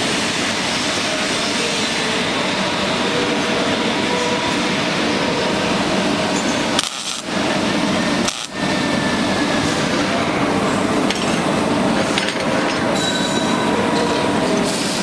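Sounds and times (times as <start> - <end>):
welding arc crackling: 6.6 - 9.2.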